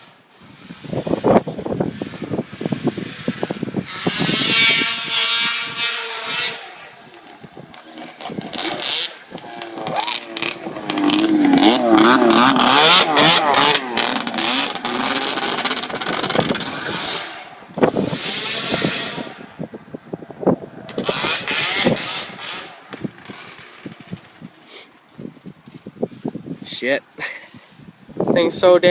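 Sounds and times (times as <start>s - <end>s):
snowmobile engine revving: 1.2s - 19.7s, 20.4s - 24.0s.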